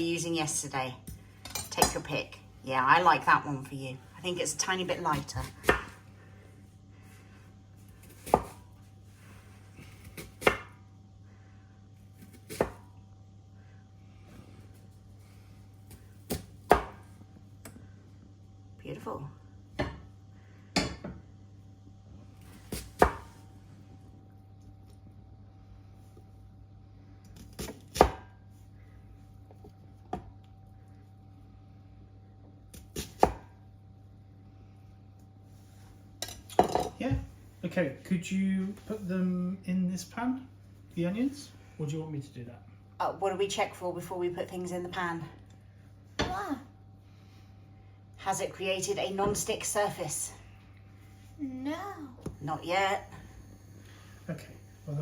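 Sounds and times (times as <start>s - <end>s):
knife chopping onion on board: 5.0s - 6.0s, 8.0s - 8.7s, 9.8s - 10.8s, 12.2s - 12.8s, 15.9s - 17.1s, 22.7s - 23.4s, 27.4s - 28.4s, 32.7s - 33.6s.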